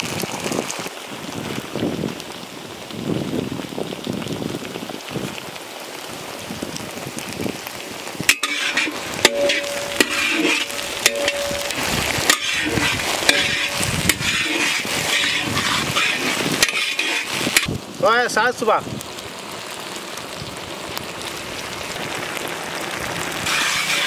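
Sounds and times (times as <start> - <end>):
oil sizzling in a wok: 0.0 - 24.0
spatula scraping a pan: 8.3 - 17.7, 23.4 - 24.0.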